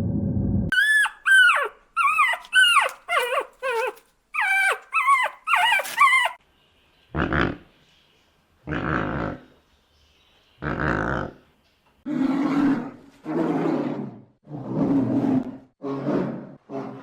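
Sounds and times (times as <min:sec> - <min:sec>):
animal crying: 0:00.7 - 0:06.4.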